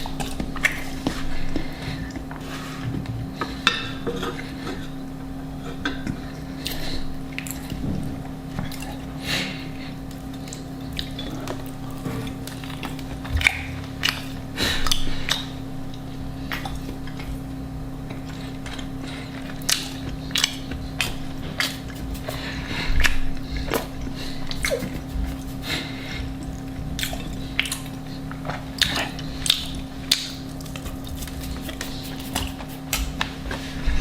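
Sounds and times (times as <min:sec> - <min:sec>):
steady low hum: 0:00.0 - 0:34.0
chewing and mouth noises: 0:08.5 - 0:33.4.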